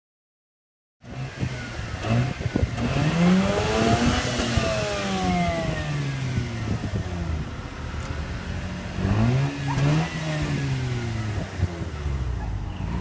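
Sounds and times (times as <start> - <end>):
rotary engine revving: 1.0 - 13.0.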